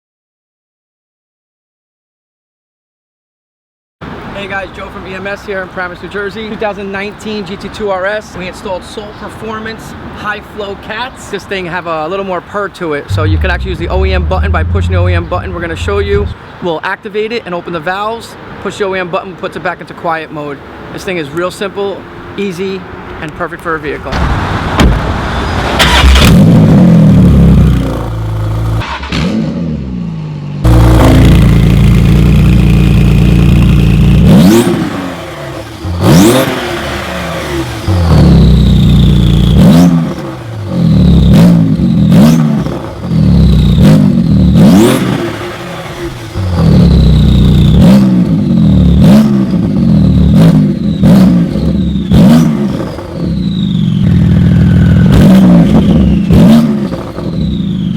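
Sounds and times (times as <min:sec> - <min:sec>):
quick throttle blips: 0:13.1 - 0:16.4, 0:25.8 - 0:26.4
sports car engine revving: 0:13.1 - 0:16.4, 0:25.8 - 0:57.6.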